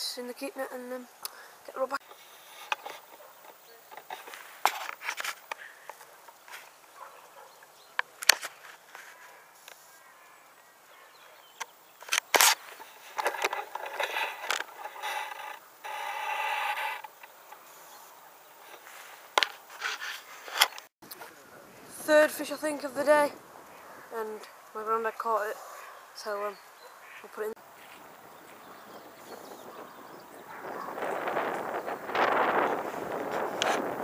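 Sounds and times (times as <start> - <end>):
fishing tackle clicks and knocks: 12.1 - 15.6.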